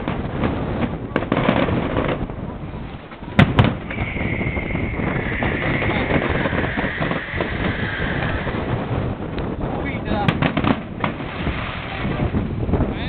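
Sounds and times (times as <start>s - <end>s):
firework bangs: 0.0s - 12.9s
firework crackle: 0.0s - 13.0s
falling firework whistle: 3.4s - 8.9s.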